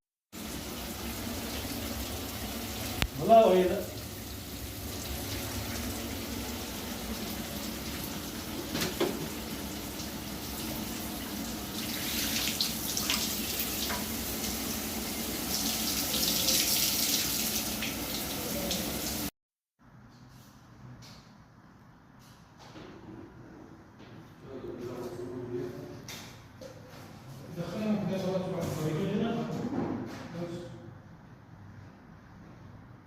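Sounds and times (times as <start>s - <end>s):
water spraying and splashing: 0.3s - 19.3s.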